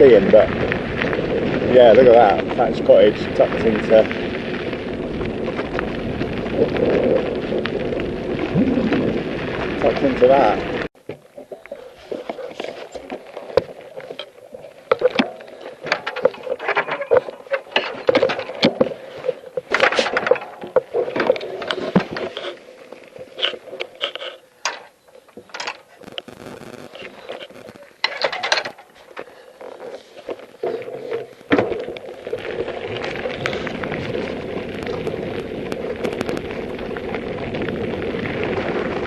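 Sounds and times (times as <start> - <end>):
bicycle tyres crunching on gravel: 0.0 - 39.0
bike knocking and rattling: 12.3 - 26.0, 27.8 - 39.0.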